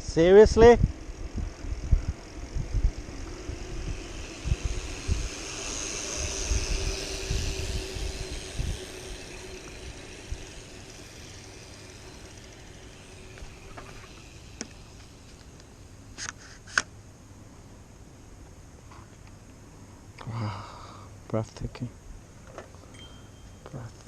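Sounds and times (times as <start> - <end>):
wind buffeting microphone: 0.0 - 14.7
vehicle passing: 0.9 - 16.0.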